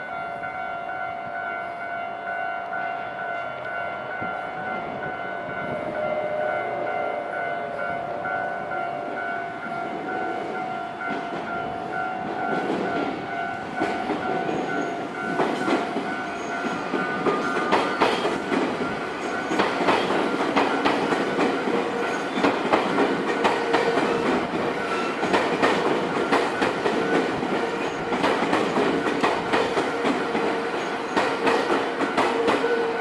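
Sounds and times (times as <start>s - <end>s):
level crossing warning bell: 0.0s - 33.0s
train wheels clacking over rail joints: 12.3s - 33.0s.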